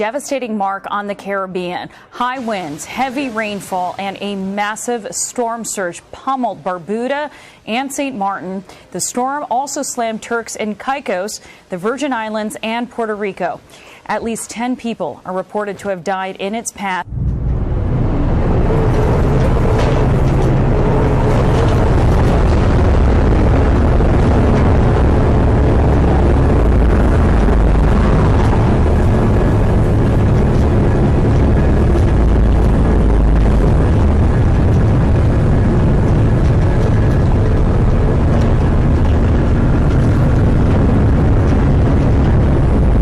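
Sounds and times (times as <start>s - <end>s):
hurricane wind on microphone: 1.6s - 5.6s, 17.0s - 43.0s
driving rain: 2.2s - 4.2s, 17.0s - 43.0s.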